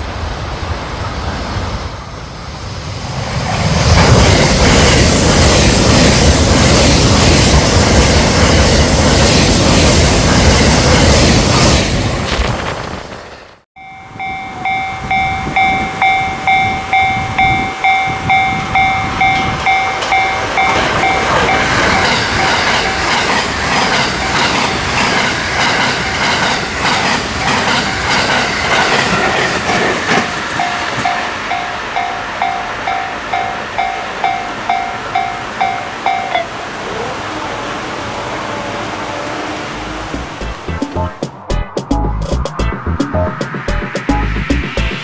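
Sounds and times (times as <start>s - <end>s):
level crossing warning bell ringing: 13.8s - 23.4s, 25.6s - 37.3s
train wheels clattering over rail joints: 16.6s - 36.4s.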